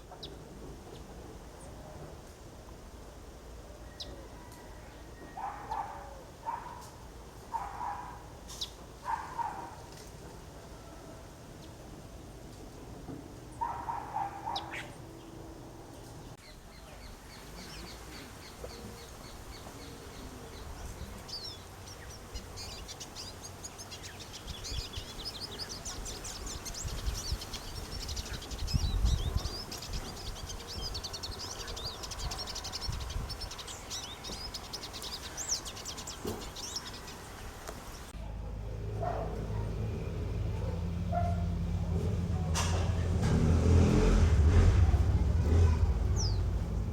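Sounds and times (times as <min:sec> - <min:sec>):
small birds chirping: 0:05.3 - 0:10.2, 0:13.4 - 0:38.2, 0:44.8 - 0:46.9
low rumble: 0:39.4 - 0:46.9.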